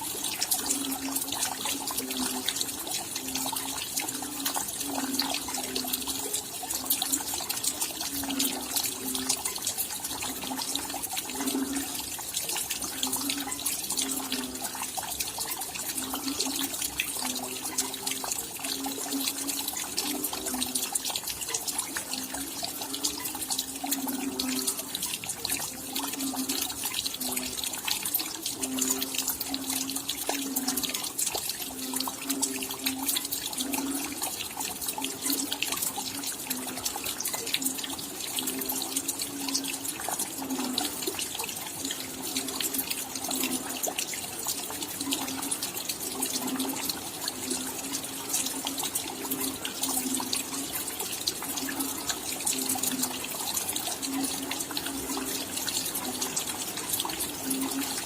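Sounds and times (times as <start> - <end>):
rain patter: 0.0 - 58.0
water dripping plops: 0.0 - 58.0.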